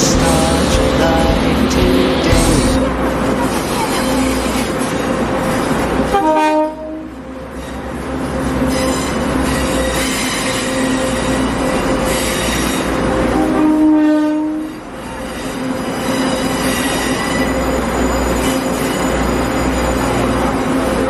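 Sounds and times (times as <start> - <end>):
train running: 0.0 - 21.0
train horn blast: 6.0 - 17.5.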